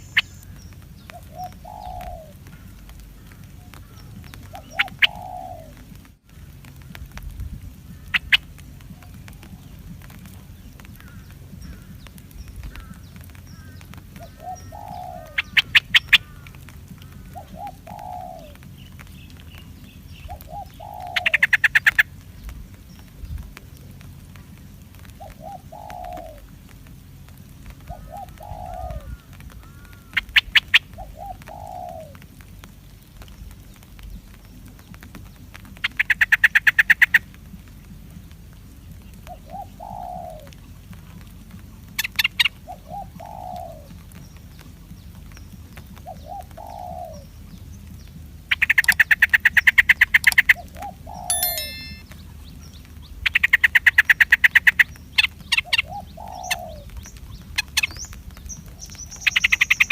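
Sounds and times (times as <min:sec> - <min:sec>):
low cooing bird calls: 0:00.0 - 0:07.2, 0:07.8 - 0:22.2, 0:25.1 - 0:26.6, 0:27.8 - 0:32.4, 0:38.9 - 0:45.2, 0:45.8 - 0:52.1, 0:53.2 - 0:59.9
shrill bird chattering: 0:48.5 - 0:50.6.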